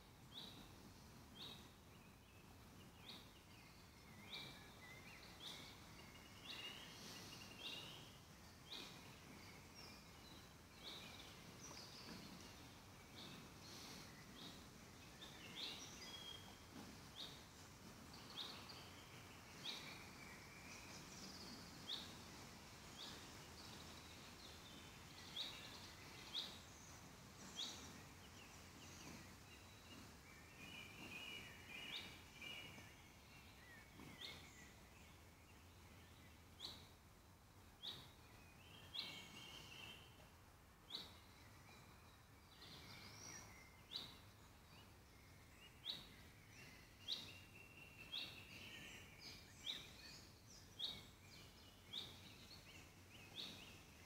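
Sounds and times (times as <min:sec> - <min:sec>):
warbling birdsong: 0:00.0 - 0:54.0.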